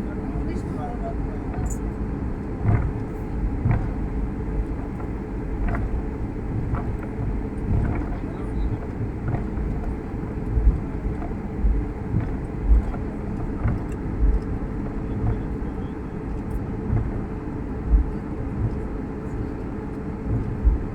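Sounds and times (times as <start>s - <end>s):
airliner cabin rumble: 0.0s - 20.9s
low thumps: 5.6s - 15.7s, 16.4s - 19.3s, 20.2s - 20.9s.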